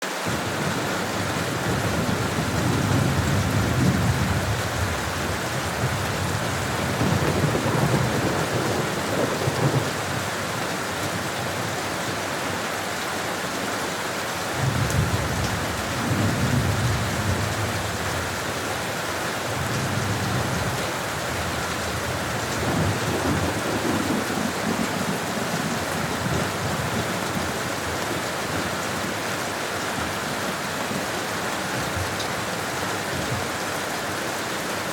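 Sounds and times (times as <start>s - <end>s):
steady rain: 0.0s - 34.9s
low thunder rumbles: 0.3s - 10.3s, 14.6s - 18.6s, 19.4s - 28.8s.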